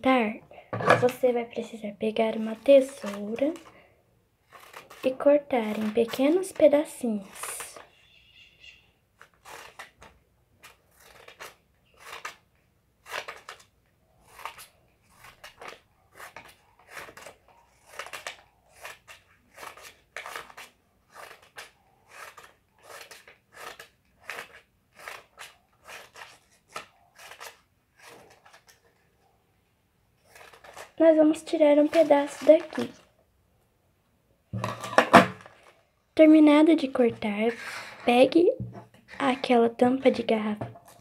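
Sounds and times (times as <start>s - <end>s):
scissors snipping paper: 2.3s - 3.7s, 4.5s - 7.9s, 9.2s - 12.4s, 13.0s - 29.0s, 30.2s - 33.0s.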